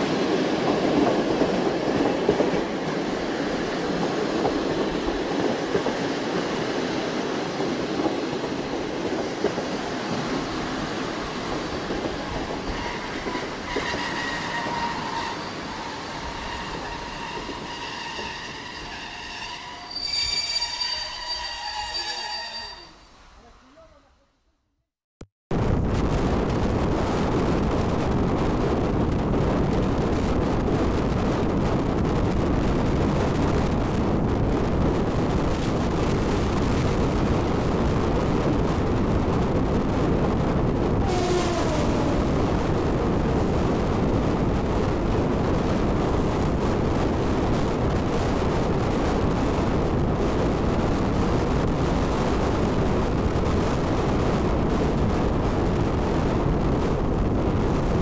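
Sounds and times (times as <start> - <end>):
wind rushing: 0.0 - 22.0, 25.6 - 58.0
train wheel noise: 0.0 - 23.0.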